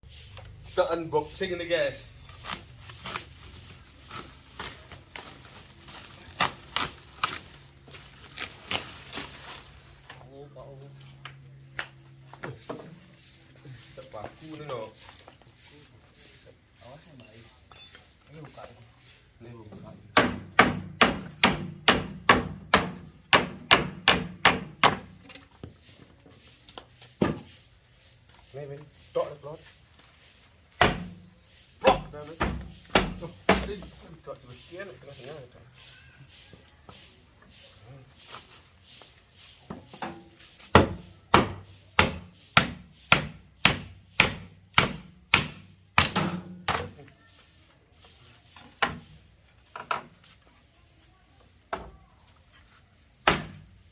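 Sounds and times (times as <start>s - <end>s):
hammer striking wooden crate: 20.2s - 25.1s, 31.9s - 33.7s, 40.7s - 46.8s, 53.2s - 53.6s.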